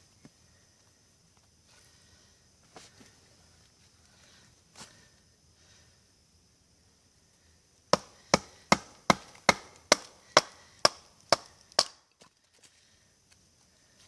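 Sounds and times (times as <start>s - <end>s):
knife chopping into wood: 7.9s - 12.0s.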